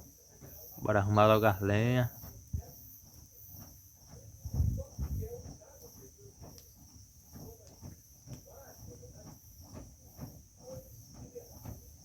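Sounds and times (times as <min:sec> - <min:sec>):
crickets chirping: 0:00.0 - 0:12.0
faint ticks: 0:06.4 - 0:08.5.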